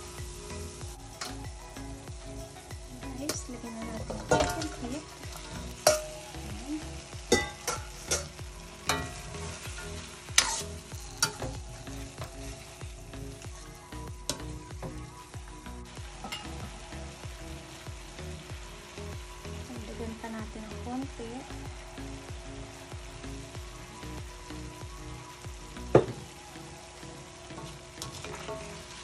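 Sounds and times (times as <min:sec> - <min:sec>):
food sizzling in a pot: 0:00.0 - 0:29.0.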